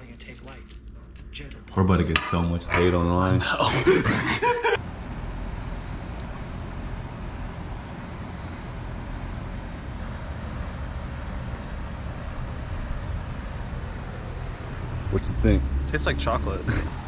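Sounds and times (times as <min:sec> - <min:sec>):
low fluttering rumble: 0:04.8 - 0:17.0.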